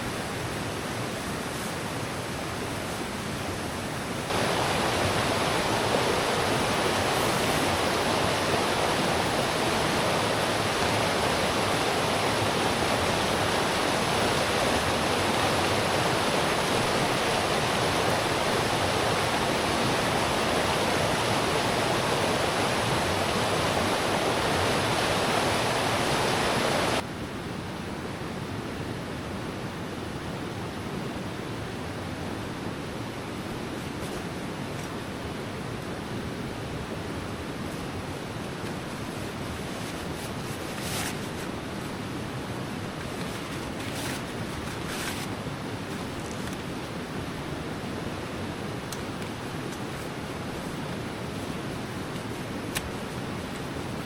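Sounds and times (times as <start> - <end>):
river water rushing: 0.0 - 27.0.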